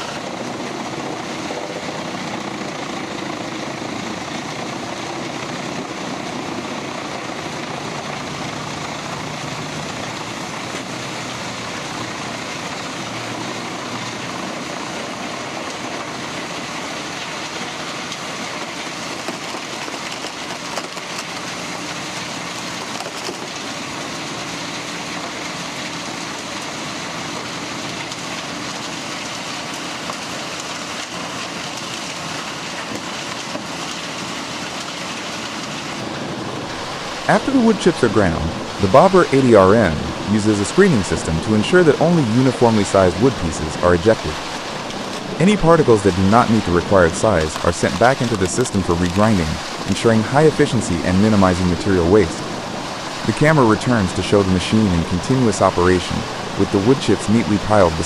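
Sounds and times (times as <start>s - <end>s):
wood chipper running: 0.0s - 58.0s.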